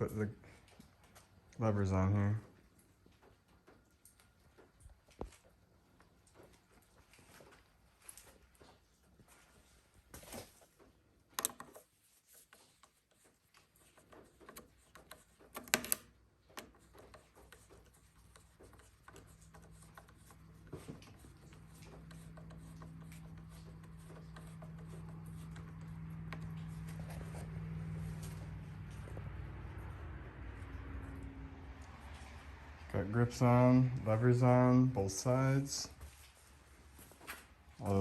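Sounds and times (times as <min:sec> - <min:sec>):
steady low hum: 0:12.8 - 0:38.0.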